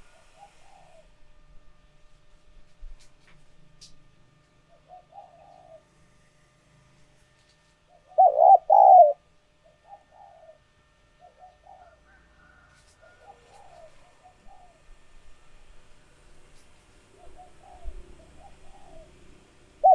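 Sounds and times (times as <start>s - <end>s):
doves cooing: 0.3s - 1.1s, 4.7s - 5.9s, 8.0s - 15.0s, 17.0s - 19.9s.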